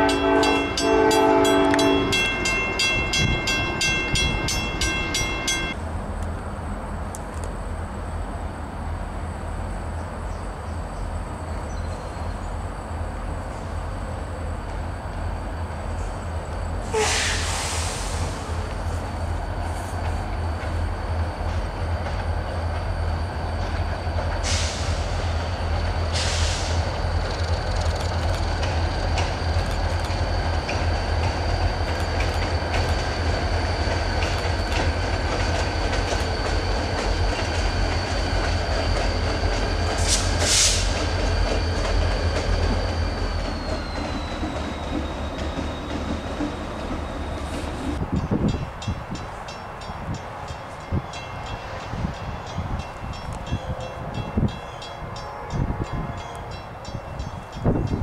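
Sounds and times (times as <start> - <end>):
diesel locomotive engines rumbling: 0.0 - 58.0
short hissy screeches: 16.9 - 18.5
high-pitched wheel squeal: 37.8 - 47.9.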